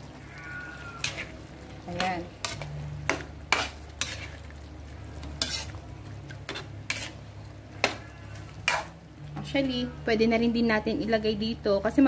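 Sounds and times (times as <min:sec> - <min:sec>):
low steady hum: 0:00.0 - 0:12.0
metal spatula scraping a pan: 0:00.2 - 0:04.5, 0:05.1 - 0:09.0.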